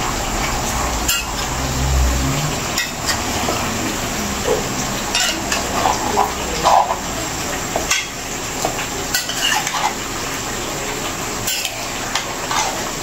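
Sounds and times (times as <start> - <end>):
chicken sizzling in a pot: 0.0 - 13.0
spoon clinking against a pot: 7.8 - 8.2, 9.1 - 10.0, 11.4 - 12.8
metal spoon scraping a pot: 9.1 - 10.0, 11.4 - 13.0.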